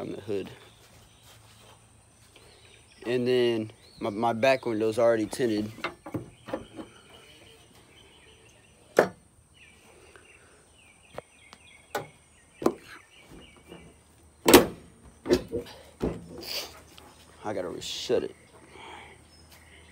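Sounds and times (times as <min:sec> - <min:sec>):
faint bird chirps: 0:00.0 - 0:14.4, 0:15.6 - 0:19.9
handling knocks and thumps: 0:05.5 - 0:07.0, 0:11.9 - 0:16.4.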